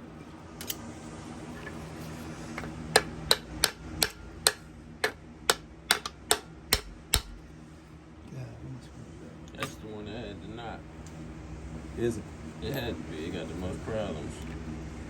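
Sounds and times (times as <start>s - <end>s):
metal-on-metal taps: 2.6s - 7.4s.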